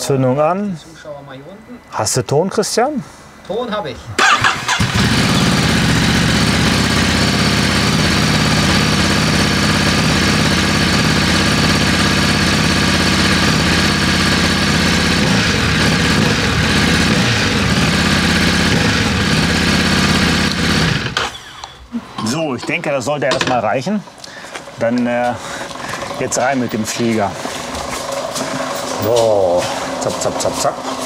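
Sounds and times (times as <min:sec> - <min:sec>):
motorcycle engine idling: 0:04.2 - 0:21.3, 0:25.4 - 0:31.0.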